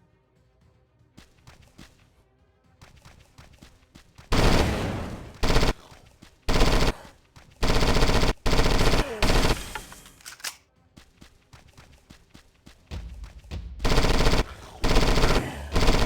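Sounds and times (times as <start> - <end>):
automatic gunfire bursts: 4.3 - 5.9, 6.5 - 10.2, 13.8 - 16.0.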